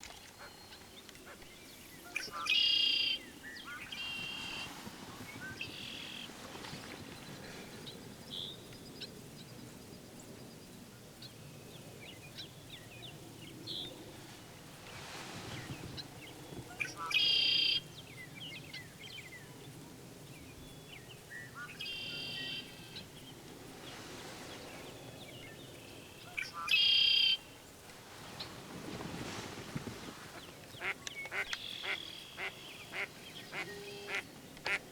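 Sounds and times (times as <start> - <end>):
soft bird chirps: 0.1 - 8.6.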